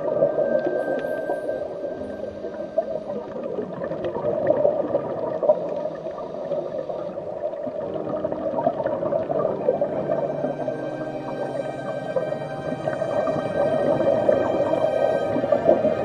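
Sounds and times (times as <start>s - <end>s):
underwater bubbling: 0.0s - 16.0s.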